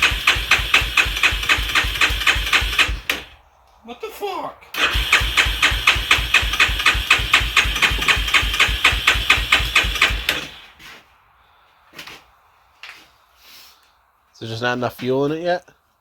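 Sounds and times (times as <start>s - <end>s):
engine cranking without firing: 0.0s - 3.4s, 4.7s - 10.8s.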